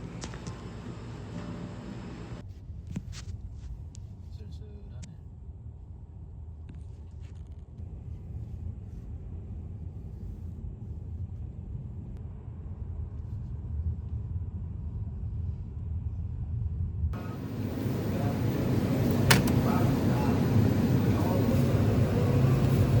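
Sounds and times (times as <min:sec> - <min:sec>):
steady low rumble: 0:11.4 - 0:23.0
faint clicks: 0:17.2 - 0:23.0.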